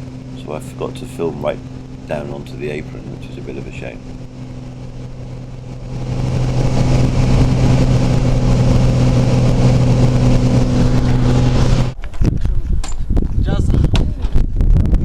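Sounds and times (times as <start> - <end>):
light aircraft engine droning: 0.0 - 12.0.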